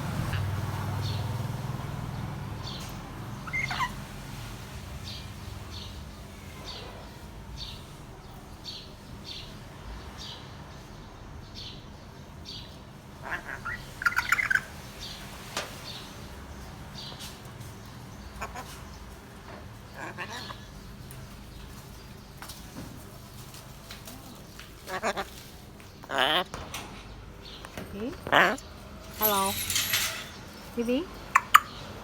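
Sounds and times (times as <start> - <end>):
parrot squawking calls: 3.4 - 4.1, 13.1 - 14.7, 18.4 - 18.9, 19.6 - 20.8, 24.8 - 26.6, 28.1 - 30.0, 31.3 - 31.9.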